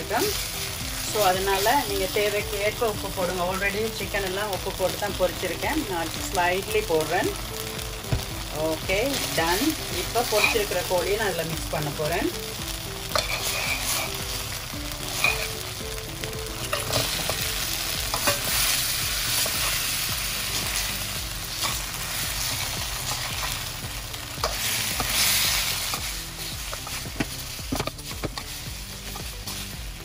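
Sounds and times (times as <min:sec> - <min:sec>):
sauce sizzling in a wok: 0:00.0 - 0:30.0
metal spoon scraping pan: 0:13.1 - 0:14.2, 0:15.1 - 0:15.5.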